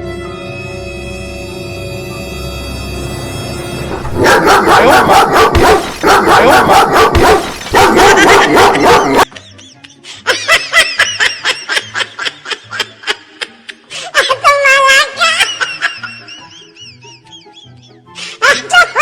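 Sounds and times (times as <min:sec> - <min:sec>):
dogs barking rapidly: 0:03.9 - 0:09.3.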